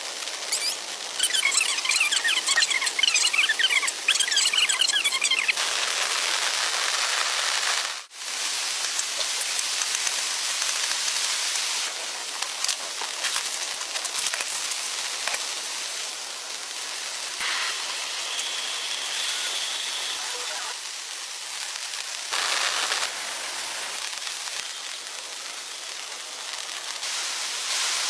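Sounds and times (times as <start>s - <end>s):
heavy rain falling: 0.0s - 28.0s
shrill chirping: 0.5s - 5.6s.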